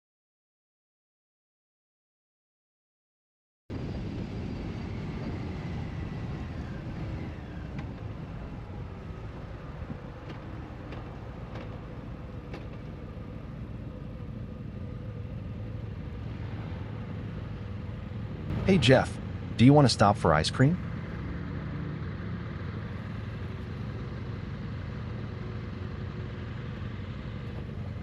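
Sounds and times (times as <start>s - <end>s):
road and wind noise: 3.7s - 28.0s.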